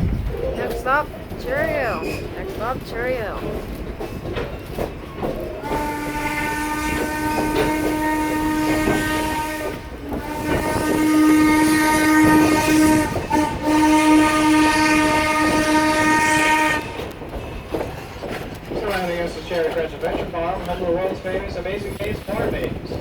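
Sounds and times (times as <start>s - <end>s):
steam whistle blasts: 5.6s - 16.9s.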